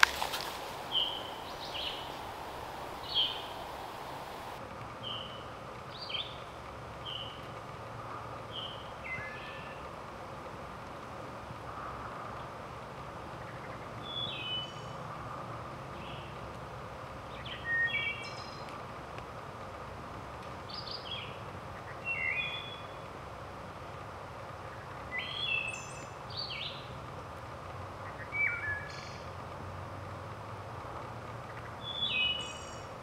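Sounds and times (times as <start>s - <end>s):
wood thrush singing: 0.0s - 4.6s
steady background hiss: 0.0s - 33.0s.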